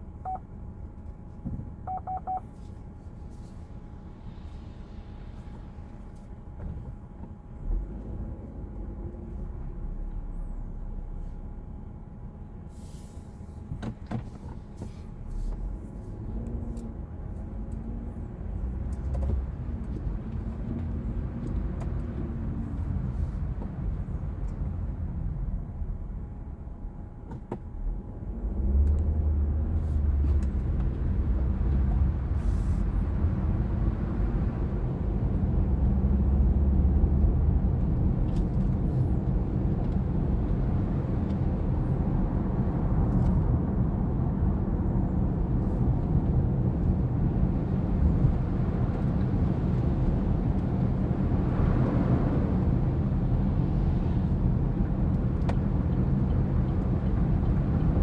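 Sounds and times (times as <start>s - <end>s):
motor vehicle engine rumble: 0.0s - 58.0s
short electronic beeps: 0.2s - 0.4s, 1.9s - 2.5s.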